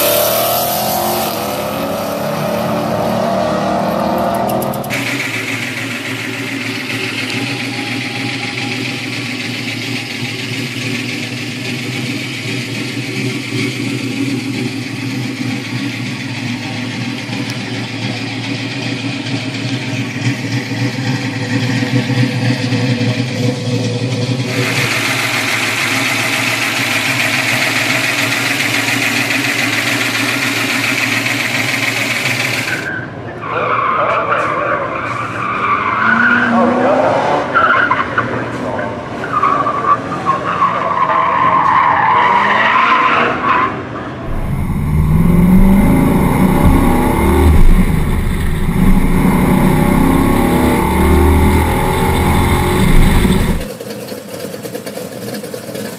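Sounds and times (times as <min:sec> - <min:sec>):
car engine running: 0:00.0 - 0:32.9, 0:44.2 - 0:55.9.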